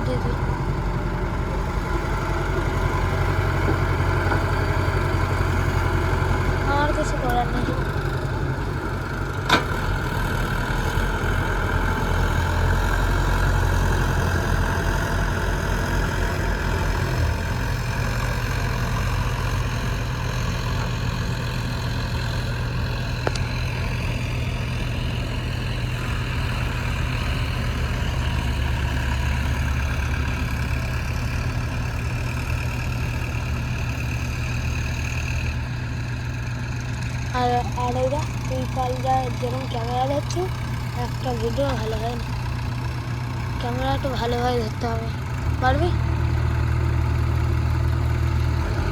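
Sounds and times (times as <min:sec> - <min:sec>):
diesel engines running: 0:00.0 - 0:48.9.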